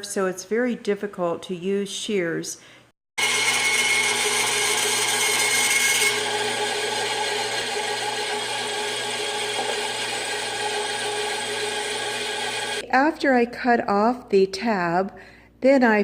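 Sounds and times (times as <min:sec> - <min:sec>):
bandsaw cutting metal sheet: 0:03.2 - 0:12.8.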